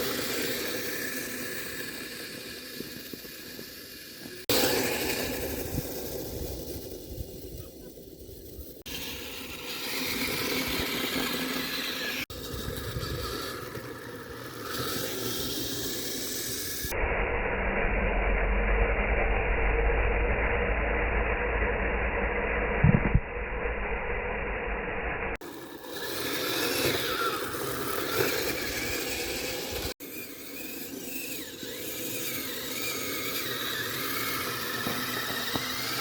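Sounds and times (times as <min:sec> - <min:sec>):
electric motor running: 0:00.0 - 0:17.0, 0:25.4 - 0:36.0
heavy low rumble: 0:16.9 - 0:25.4
tracks rattling: 0:25.4 - 0:36.0.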